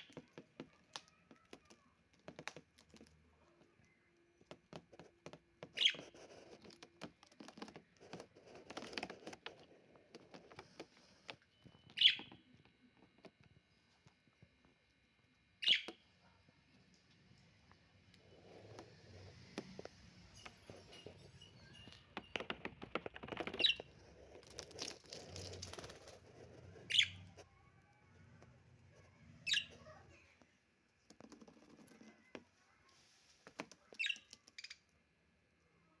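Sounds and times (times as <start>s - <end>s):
birds clicking and rustling: 0.0s - 14.0s, 19.6s - 27.4s
lovebirds chirping: 5.7s - 6.6s, 10.6s - 12.9s, 15.5s - 16.2s, 19.7s - 30.0s, 33.8s - 35.0s.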